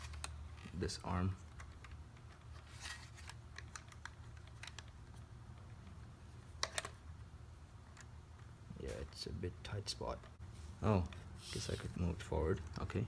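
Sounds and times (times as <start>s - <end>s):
clicks and scrapes of plastic parts: 0.0s - 6.0s.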